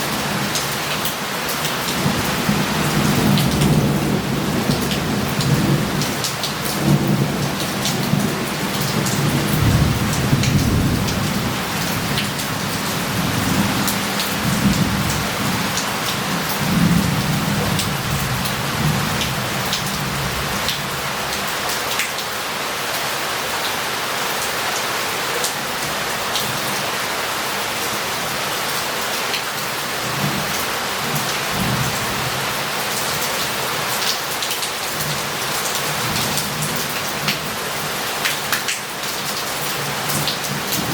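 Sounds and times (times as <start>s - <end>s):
heavy rain on street: 0.0s - 40.9s
thunder rumbling: 9.2s - 20.5s.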